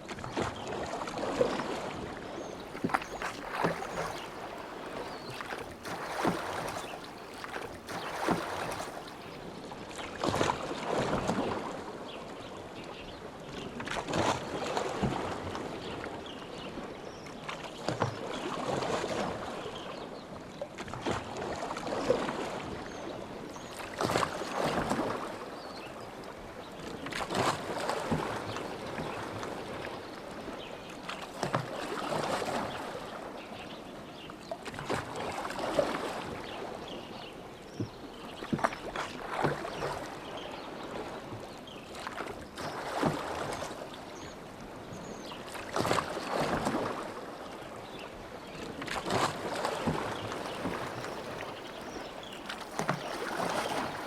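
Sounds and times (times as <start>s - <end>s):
oars splashing in water: 2.6s - 9.5s, 26.9s - 29.8s, 31.1s - 33.0s, 37.8s - 41.2s, 41.9s - 44.3s, 45.1s - 47.5s, 48.6s - 54.0s.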